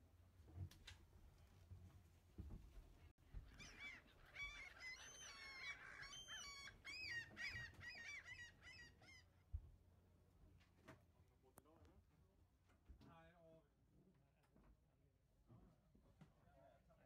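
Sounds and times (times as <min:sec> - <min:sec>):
faint honking bird calls: 0:03.5 - 0:09.4.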